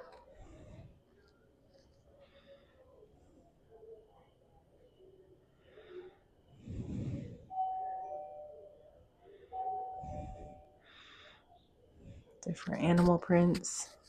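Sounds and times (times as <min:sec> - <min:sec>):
electronic door chime: 0:07.6 - 0:08.8, 0:09.6 - 0:10.7.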